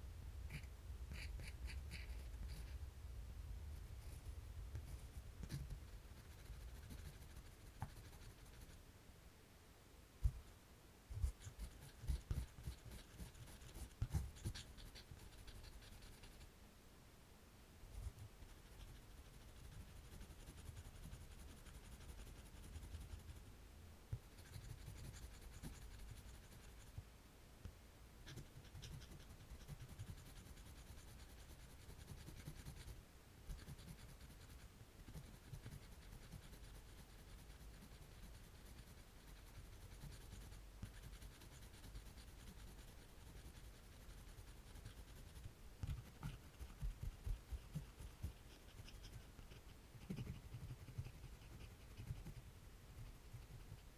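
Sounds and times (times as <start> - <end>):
drawing tool scratching paper: 4.8 - 8.8, 11.2 - 16.5, 17.9 - 23.4, 24.2 - 26.9, 28.2 - 52.4.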